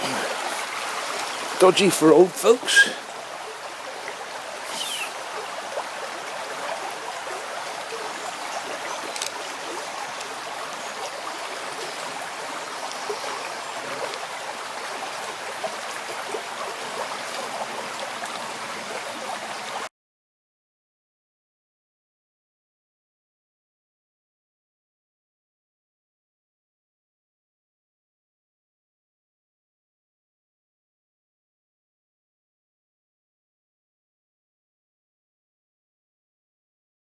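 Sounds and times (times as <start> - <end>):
small river flowing: 0.0 - 19.9.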